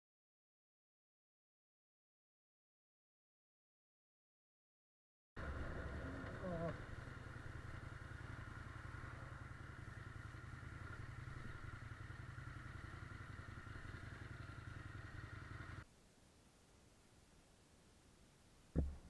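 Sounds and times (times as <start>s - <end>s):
motorcycle engine running: 5.4s - 15.8s.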